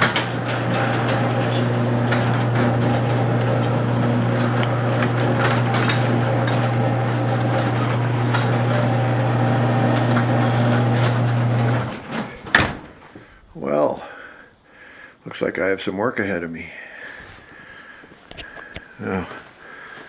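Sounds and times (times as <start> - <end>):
garage door motor hum: 0.0 - 12.9
garage door clicking and rattling: 0.0 - 13.0.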